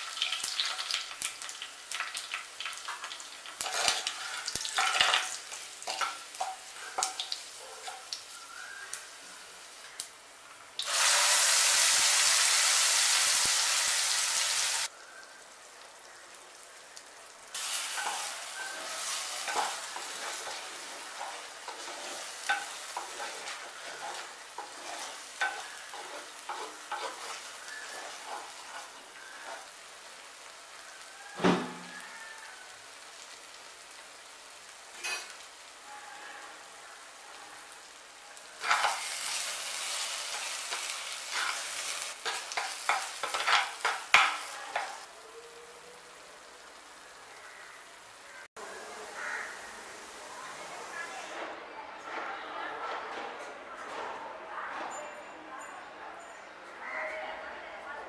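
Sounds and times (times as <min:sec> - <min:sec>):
paste sizzling in oil: 0:00.0 - 0:10.1, 0:10.8 - 0:15.4, 0:16.0 - 0:35.8, 0:37.0 - 0:45.1
spoon stirring and scraping paste: 0:03.6 - 0:05.1, 0:18.0 - 0:29.7, 0:40.4 - 0:45.0.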